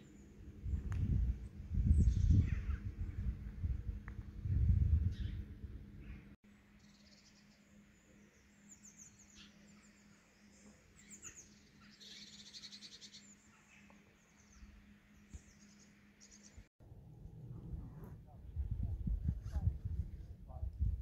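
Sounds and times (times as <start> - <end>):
steady low hum: 0.0 - 11.8
small birds chirping: 5.0 - 16.7.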